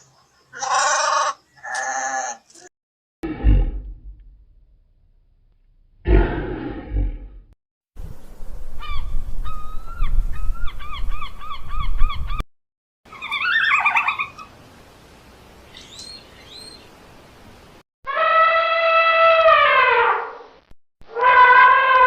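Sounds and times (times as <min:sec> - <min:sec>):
bird calls: 0:13.1 - 0:14.6, 0:15.7 - 0:16.9.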